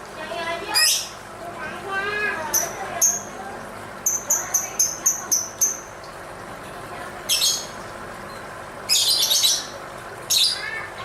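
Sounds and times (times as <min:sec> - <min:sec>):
lovebird harsh chattering: 0:08.9 - 0:10.8.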